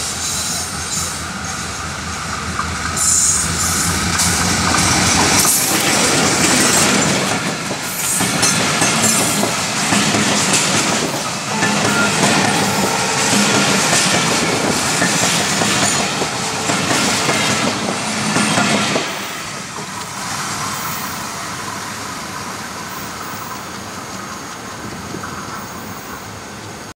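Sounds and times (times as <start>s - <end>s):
passenger train passing: 0.0s - 26.9s
wheels clattering on rails: 2.4s - 20.1s.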